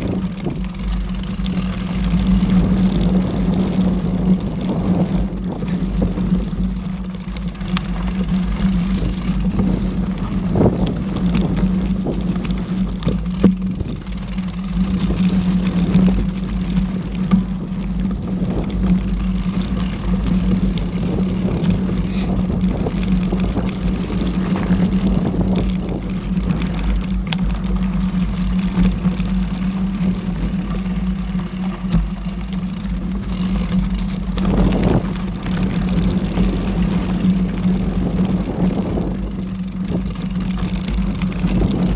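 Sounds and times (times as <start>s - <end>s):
bike knocking and rattling: 0.0s - 41.9s
wind on microphone: 0.0s - 41.9s
thin high squeal: 19.7s - 20.4s, 28.6s - 32.5s, 36.4s - 37.4s.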